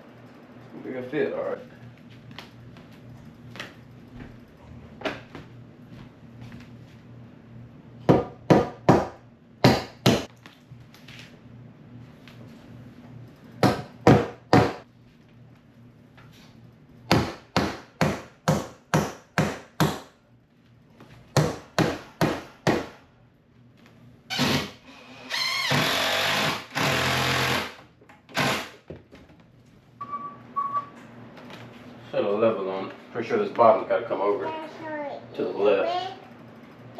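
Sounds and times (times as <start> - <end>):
power drill running: 24.3 - 28.8.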